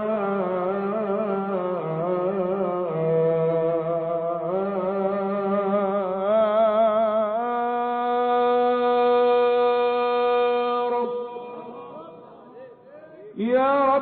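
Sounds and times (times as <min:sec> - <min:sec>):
man chanting a melisma: 0:00.0 - 0:14.0.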